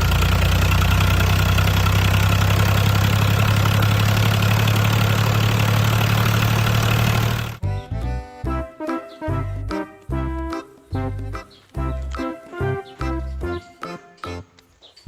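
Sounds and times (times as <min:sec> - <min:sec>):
engine idling: 0:00.0 - 0:07.6.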